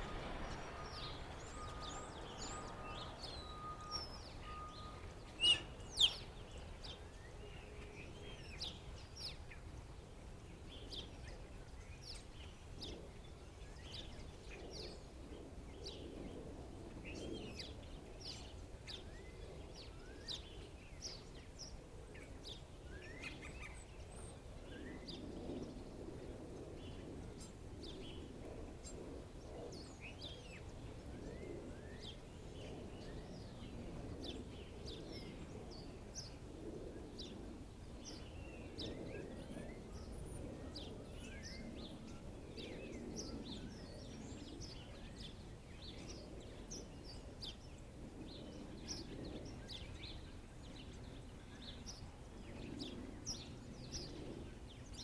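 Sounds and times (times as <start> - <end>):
low background rumble: 0.0 - 7.4
blackbirds chirping: 0.0 - 9.8.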